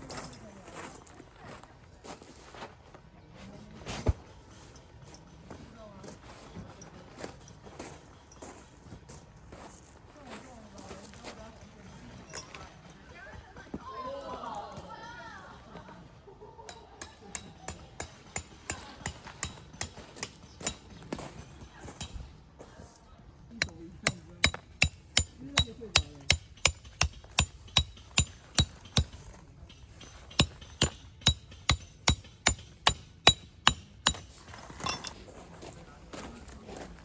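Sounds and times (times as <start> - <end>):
hammer striking metal tent stake: 16.7 - 21.0, 22.0 - 22.2, 23.6 - 35.2.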